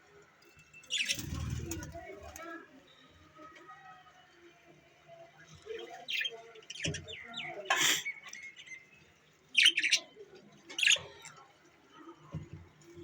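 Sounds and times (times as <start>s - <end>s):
budgerigars chirping: 0.9s - 1.4s, 9.6s - 10.1s.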